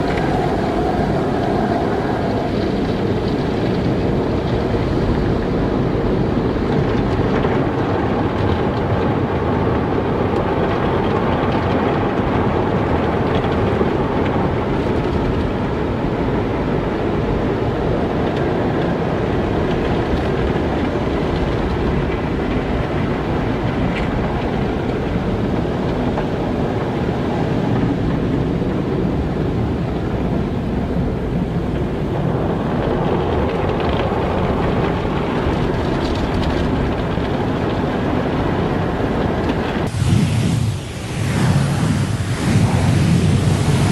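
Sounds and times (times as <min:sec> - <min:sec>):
car wash running: 0:00.0 - 0:06.7, 0:39.9 - 0:43.9.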